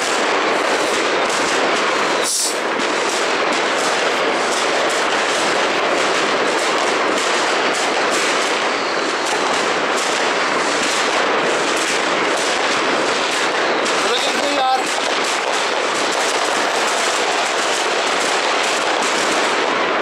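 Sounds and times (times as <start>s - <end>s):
fireworks and firecrackers crackling: 0.0s - 20.0s.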